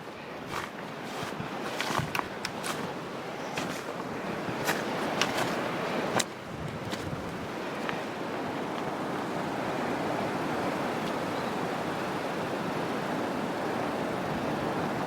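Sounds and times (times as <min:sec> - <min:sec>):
wind blowing on microphone: 0:04.4 - 0:07.7.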